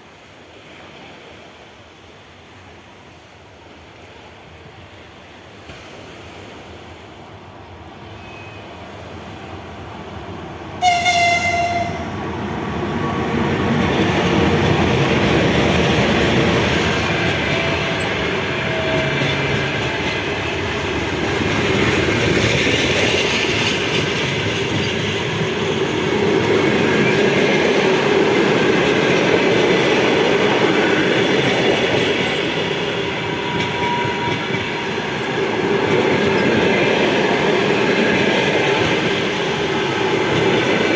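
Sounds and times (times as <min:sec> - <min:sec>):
train horn blast: 0:10.8 - 0:12.2
train wheels clickety-clack: 0:10.8 - 0:40.9.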